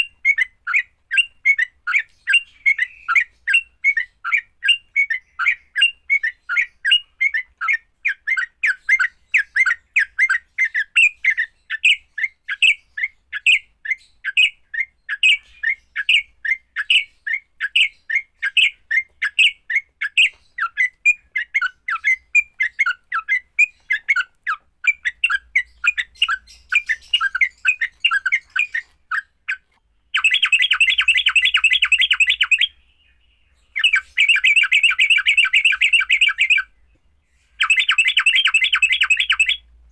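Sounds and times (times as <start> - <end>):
bird harsh chattering call: 21.4 - 32.8, 33.8 - 36.7, 37.6 - 39.6.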